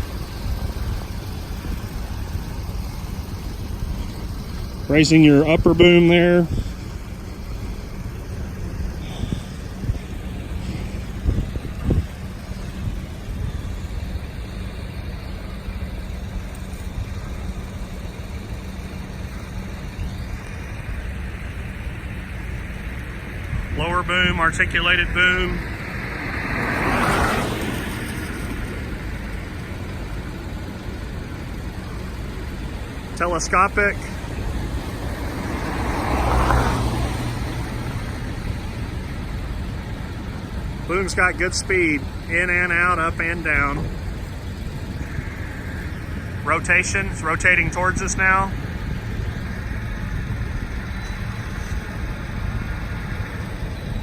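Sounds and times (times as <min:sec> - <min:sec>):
diesel truck engine humming: 0:00.0 - 0:54.0.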